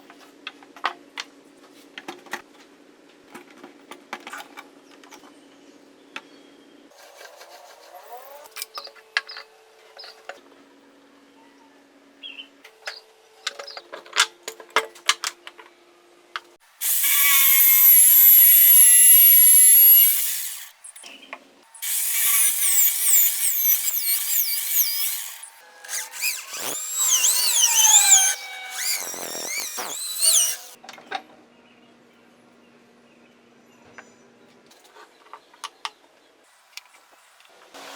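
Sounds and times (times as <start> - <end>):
power drill running: 16.8 - 20.9, 21.8 - 30.8.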